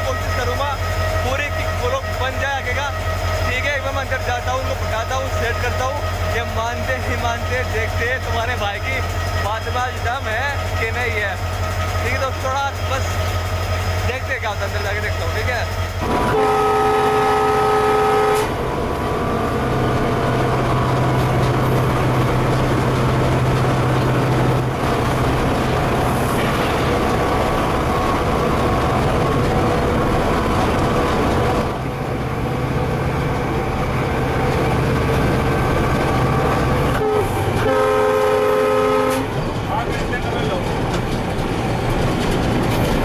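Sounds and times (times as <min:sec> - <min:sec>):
locomotive droning: 0:00.0 - 0:43.0
locomotive horn chord: 0:16.0 - 0:18.8, 0:36.9 - 0:39.4.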